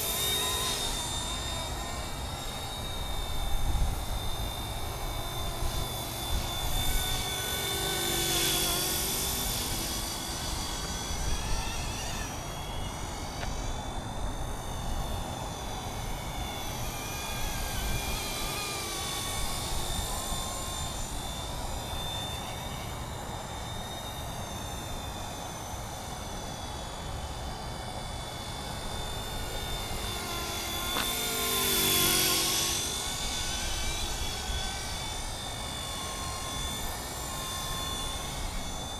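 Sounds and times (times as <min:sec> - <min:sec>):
high motor whine: 0:00.0 - 0:38.9
model helicopter rotor buzz: 0:00.0 - 0:38.9.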